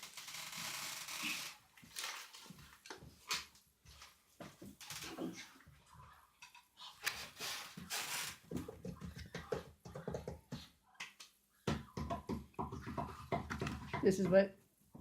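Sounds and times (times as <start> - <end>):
packaging rustling and crinkling: 0.0 - 3.5.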